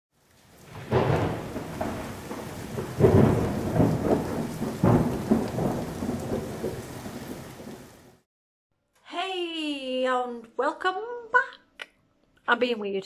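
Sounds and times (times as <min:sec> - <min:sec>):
steady rain: 0:00.1 - 0:08.3
thunder rumbling: 0:00.4 - 0:08.2.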